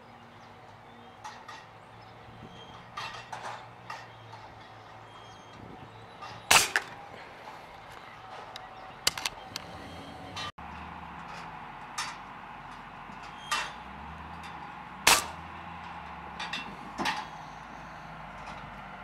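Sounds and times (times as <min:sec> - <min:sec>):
pellet rifle shot crack: 0:06.5 - 0:07.0, 0:15.1 - 0:15.4
rifle handling clicks and knocks: 0:07.9 - 0:09.7.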